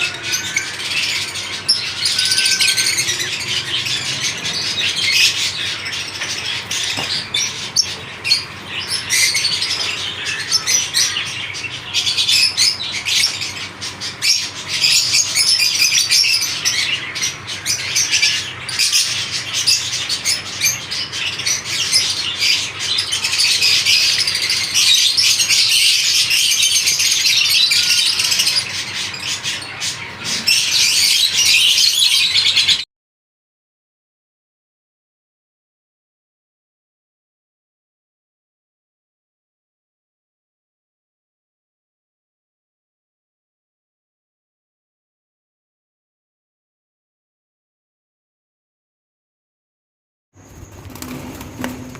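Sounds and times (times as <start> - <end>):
lovebirds chattering: 0.0 - 32.8.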